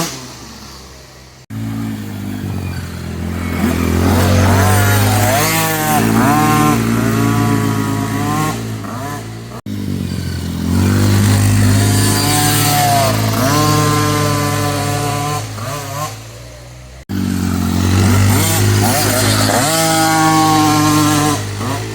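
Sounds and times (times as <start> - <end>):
dirt bike engine revving: 0.0 - 21.9.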